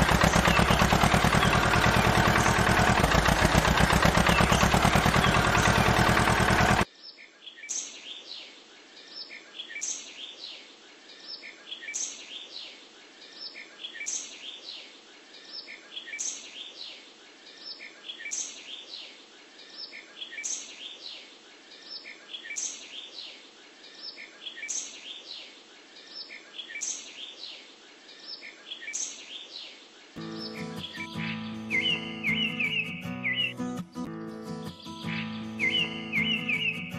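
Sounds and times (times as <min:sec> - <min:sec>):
loud steady mechanical noise: 0:00.0 - 0:06.8
birds chirping: 0:00.0 - 0:36.9.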